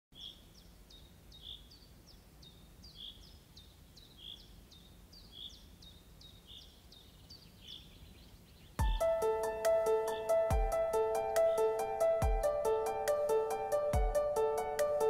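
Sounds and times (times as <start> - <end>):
music track: 8.8 - 15.0.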